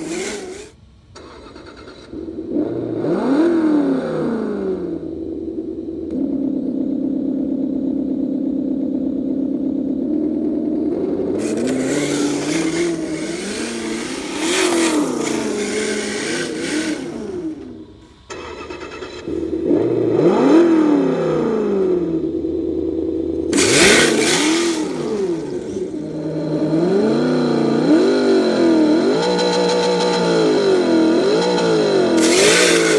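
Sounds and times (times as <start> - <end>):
loud rushing hiss: 0.0 - 0.9, 11.4 - 18.3
simulated engine from small speaker: 0.0 - 32.9.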